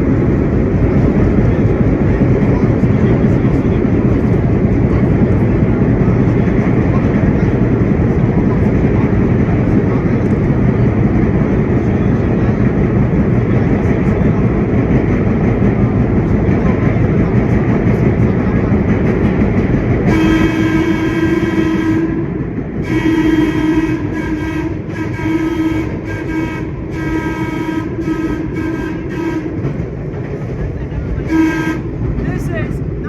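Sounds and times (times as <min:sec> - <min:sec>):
subway train rumbling in tunnel: 0:00.0 - 0:33.0
train horn: 0:20.0 - 0:29.8, 0:31.2 - 0:32.0.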